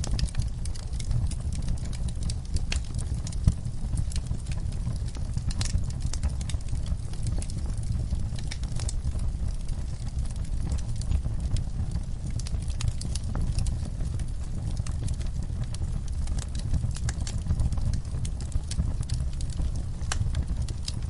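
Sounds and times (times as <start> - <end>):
fire crackling and popping: 0.0 - 21.0
low steady rumble: 0.0 - 21.0.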